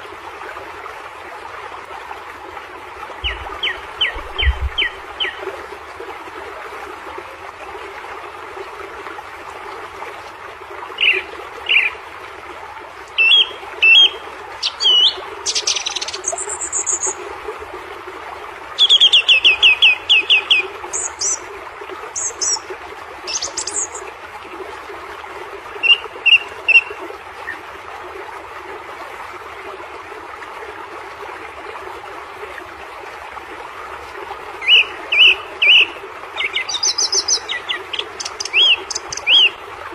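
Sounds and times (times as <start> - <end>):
birds chirping: 3.2 - 5.4, 34.6 - 39.6.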